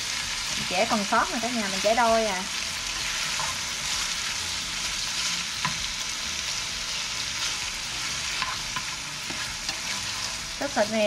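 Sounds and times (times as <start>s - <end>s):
meat sizzling in a hot pan: 0.0s - 11.0s.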